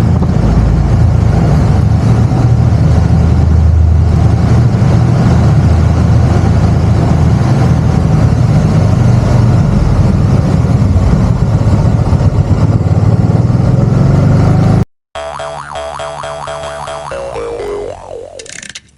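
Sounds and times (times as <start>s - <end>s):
road and wind noise: 0.0s - 18.9s.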